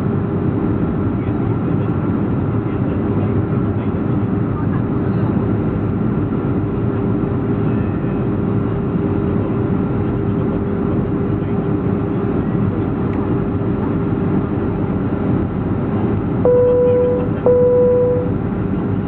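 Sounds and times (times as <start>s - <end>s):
airplane cabin engine and airflow noise: 0.0s - 19.0s
low hum: 16.4s - 18.6s.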